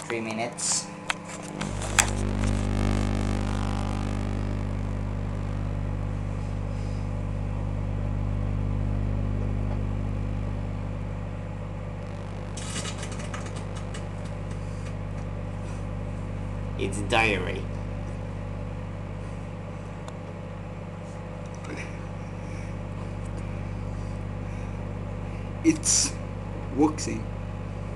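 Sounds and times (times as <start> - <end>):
microwave oven humming: 0.0 - 27.9
sharp crackles and clicks: 1.1 - 6.3, 7.6 - 15.5.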